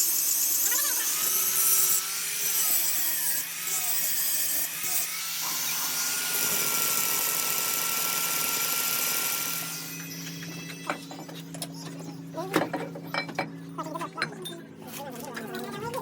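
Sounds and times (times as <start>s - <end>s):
power tool whining: 0.0s - 11.5s.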